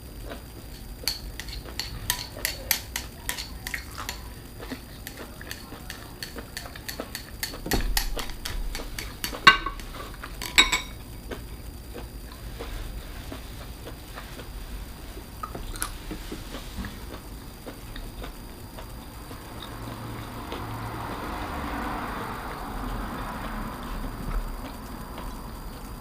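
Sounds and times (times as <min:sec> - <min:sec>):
utensils clinking against dishes: 0:00.6 - 0:11.0.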